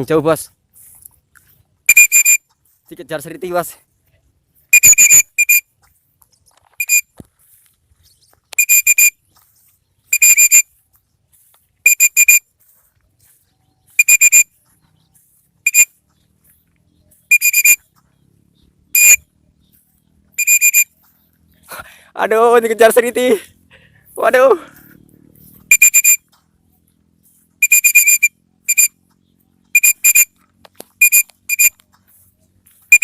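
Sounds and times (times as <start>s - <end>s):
whistle blasts: 1.8s - 2.5s, 4.7s - 5.7s, 6.8s - 7.1s, 8.6s - 9.2s, 10.1s - 10.7s, 11.8s - 12.5s, 13.9s - 14.6s, 15.6s - 16.0s, 17.3s - 17.9s, 18.9s - 19.3s, 20.4s - 21.0s, 25.6s - 26.3s, 27.6s - 29.0s, 29.7s - 30.3s, 31.0s - 31.8s.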